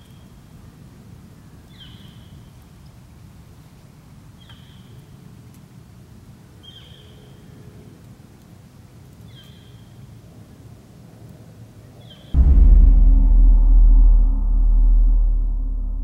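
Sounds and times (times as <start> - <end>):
steady low rumble: 12.4 - 16.0.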